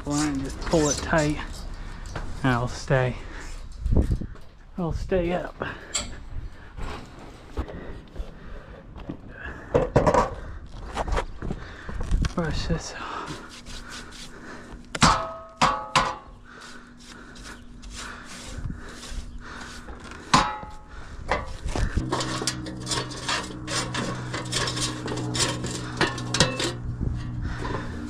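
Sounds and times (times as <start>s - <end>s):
metallic clanks: 5.8s - 6.3s, 20.3s - 28.0s
scratchy brush strokes: 13.4s - 14.6s, 16.5s - 20.3s
low motor hum: 16.4s - 28.0s.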